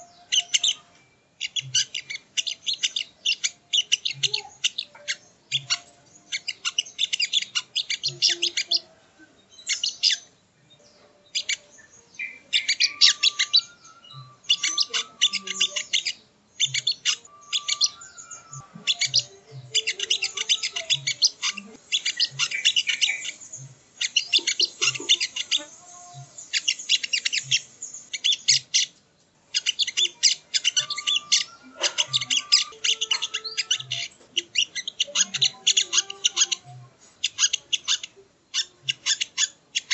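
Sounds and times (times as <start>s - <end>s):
bird chattering trills: 0.0s - 10.3s, 11.3s - 39.9s
bird whistled notes: 12.2s - 23.4s.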